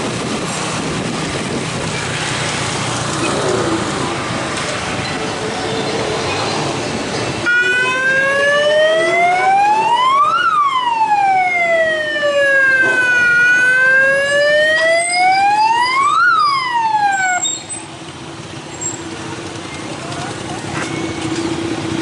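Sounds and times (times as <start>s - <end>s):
siren wailing: 7.4s - 17.4s.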